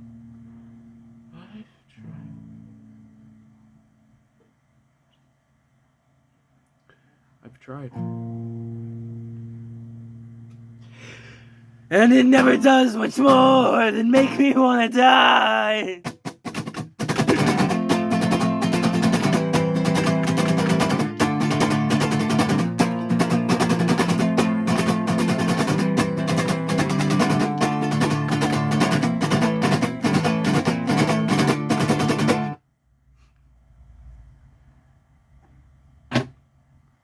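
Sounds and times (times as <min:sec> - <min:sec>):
rhythmic guitar playing: 0:08.0 - 0:32.6.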